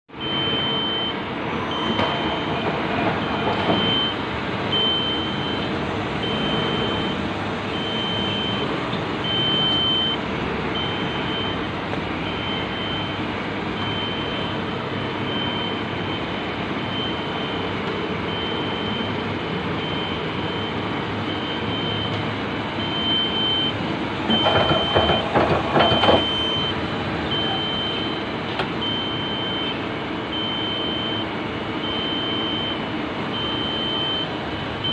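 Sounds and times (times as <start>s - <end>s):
high electronic beep: 0.2s - 2.6s, 7.8s - 8.6s, 9.2s - 10.2s, 13.8s - 17.7s, 22.8s - 28.2s.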